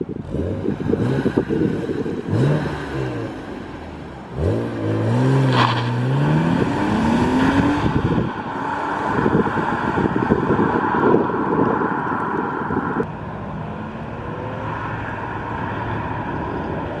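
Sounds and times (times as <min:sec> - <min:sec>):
car engine accelerating: 0:00.2 - 0:13.1.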